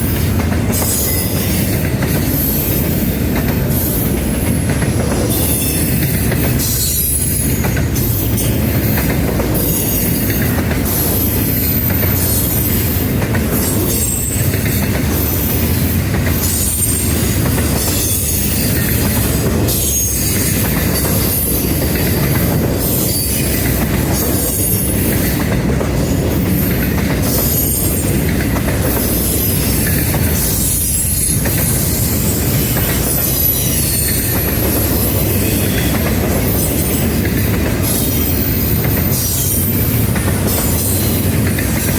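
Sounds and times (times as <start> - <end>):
freight train rumbling past: 0.0 - 41.9
wheel squeal: 5.2 - 25.5, 28.9 - 39.9.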